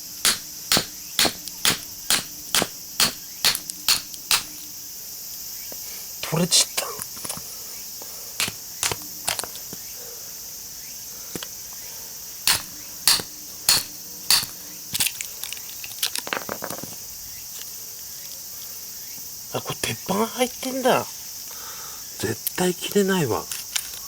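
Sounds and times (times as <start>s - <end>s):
metal parts clicking and knocking: 0.2s - 4.6s, 12.5s - 17.0s.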